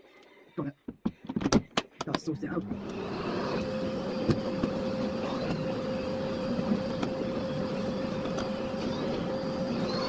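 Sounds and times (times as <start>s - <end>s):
vacuum cleaner running: 2.6s - 10.0s.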